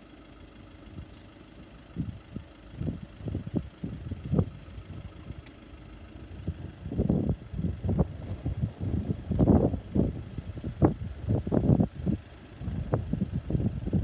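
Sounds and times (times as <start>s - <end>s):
low outdoor rumble: 0.0s - 14.0s
wind buffeting microphone: 2.0s - 5.4s, 6.1s - 14.0s.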